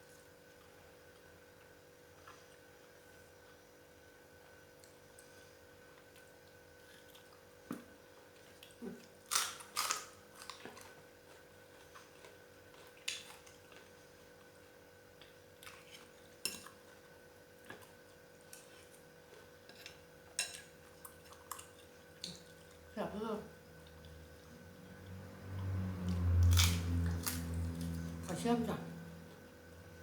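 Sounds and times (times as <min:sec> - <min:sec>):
chewing: 0:06.0 - 0:14.6, 0:15.2 - 0:22.9, 0:23.7 - 0:28.1
steady low hum: 0:21.7 - 0:30.0.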